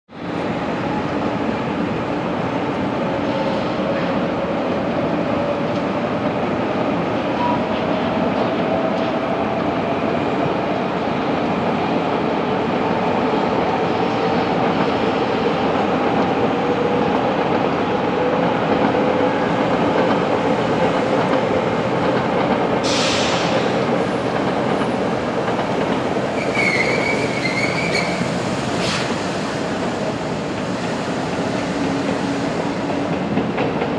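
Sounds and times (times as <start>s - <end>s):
train rumble and whine: 0.1s - 33.9s
short hiss: 22.9s - 23.5s
brief high squeal: 26.4s - 29.1s.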